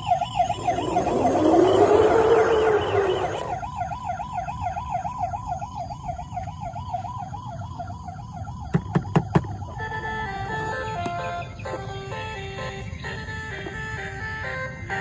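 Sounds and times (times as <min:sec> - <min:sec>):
rushing sound rising in pitch: 0:00.0 - 0:03.7
toy electronic siren wailing: 0:00.0 - 0:15.0.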